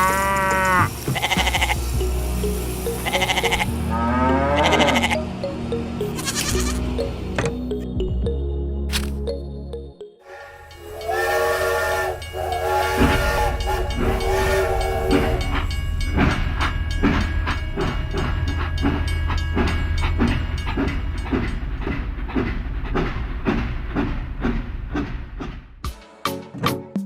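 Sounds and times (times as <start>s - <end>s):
train whistle blowing: 0.0s - 5.2s, 10.3s - 15.8s
train wheels clickety-clack: 0.7s - 3.7s, 10.7s - 25.9s.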